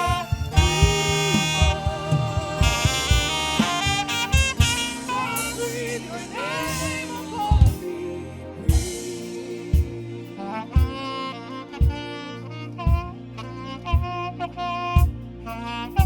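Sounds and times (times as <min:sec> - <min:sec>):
saxophone melody: 0:00.0 - 0:08.9, 0:10.4 - 0:16.0
bass line: 0:00.0 - 0:16.0
drum hits: 0:00.1 - 0:05.6.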